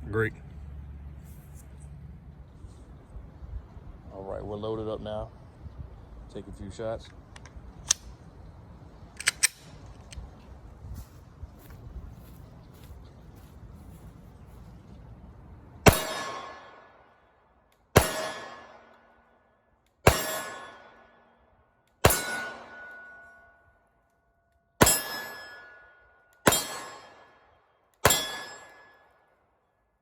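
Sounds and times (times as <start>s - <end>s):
steel targets ringing: 15.9s - 16.7s, 18.0s - 18.7s, 20.1s - 21.1s, 22.0s - 23.8s, 24.8s - 27.3s, 28.0s - 29.2s
pistol shots: 15.9s - 16.9s, 18.0s - 19.0s, 20.0s - 21.2s, 22.0s - 23.2s, 26.4s - 27.4s, 28.0s - 29.0s.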